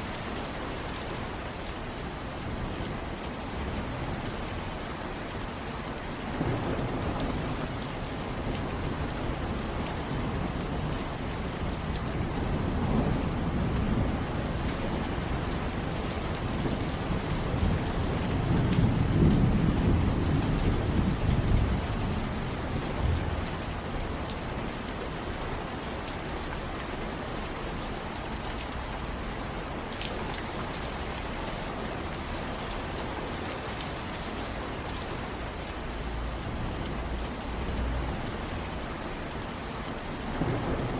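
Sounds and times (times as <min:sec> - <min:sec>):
steady rain falling: 0:00.0 - 0:40.9
low roll of thunder: 0:16.7 - 0:23.4, 0:40.3 - 0:40.9.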